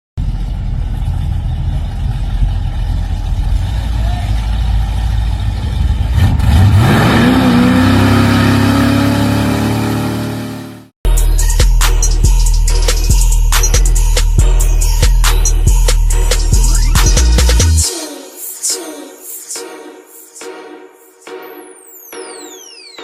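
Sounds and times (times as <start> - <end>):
car engine idling and revving: 0.2 - 17.8.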